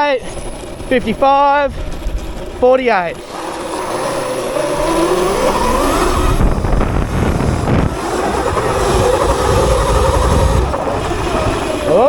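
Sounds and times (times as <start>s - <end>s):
electric motor whining: 0.0s - 12.0s
rushing rumbling noise: 0.0s - 12.0s.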